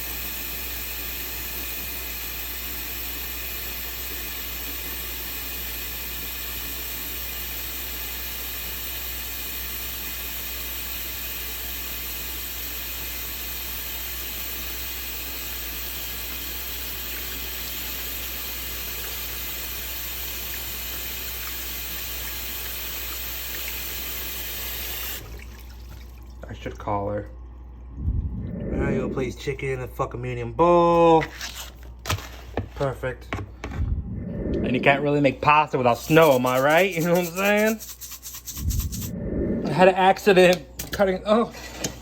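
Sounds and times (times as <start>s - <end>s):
tap water filling a pot: 0.0s - 27.6s.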